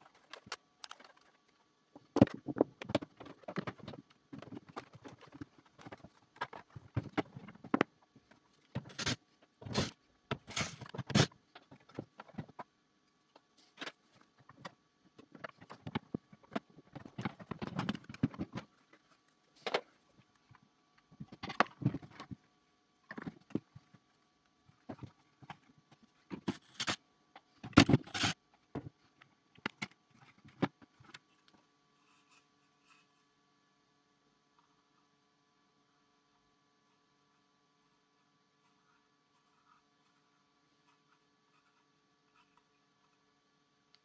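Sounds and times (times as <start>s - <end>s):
plastic parts clicking and knocking: 0.1s - 8.0s, 8.7s - 12.7s, 26.3s - 29.0s.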